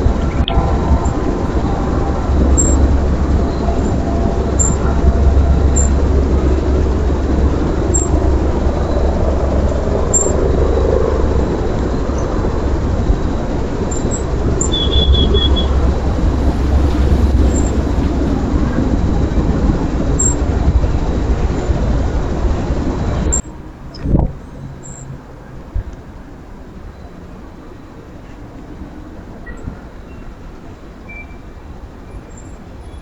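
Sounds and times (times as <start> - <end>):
low outdoor rumble: 0.0 - 23.4
high bird trill: 14.6 - 18.1.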